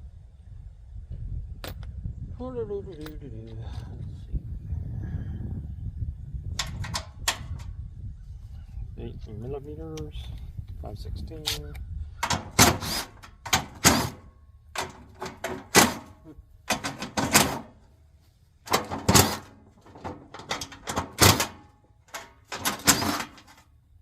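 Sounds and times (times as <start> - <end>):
hand tools clanking on metal: 12.2 - 14.2, 14.8 - 17.8, 18.7 - 23.7.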